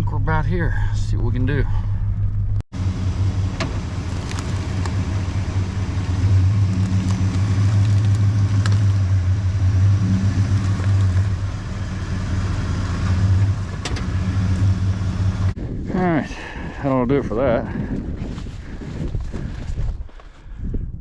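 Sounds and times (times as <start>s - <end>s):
truck engine running: 1.8s - 15.6s.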